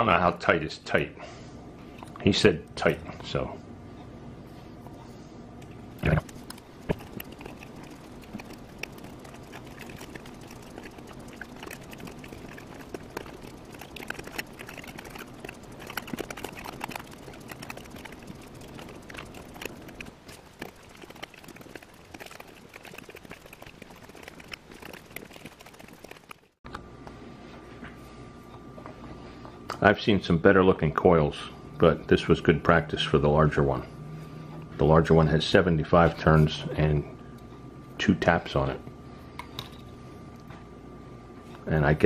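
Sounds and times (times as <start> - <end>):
faint steady hum: 0.0 - 42.0
wire winding ticks and rustles: 5.6 - 26.6.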